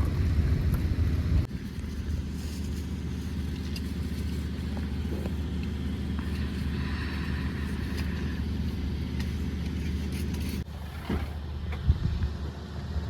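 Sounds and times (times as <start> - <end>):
car interior engine and road noise: 0.0 - 13.0.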